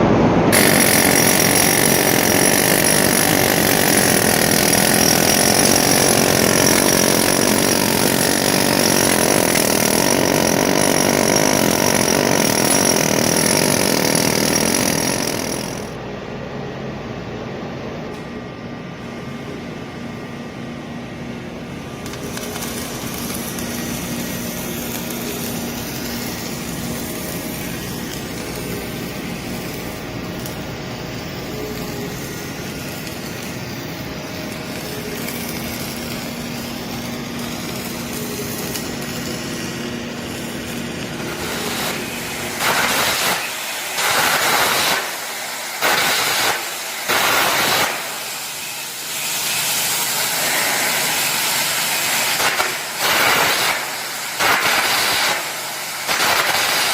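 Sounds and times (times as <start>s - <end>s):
industrial machinery noise: 0.0s - 16.4s, 18.1s - 56.9s.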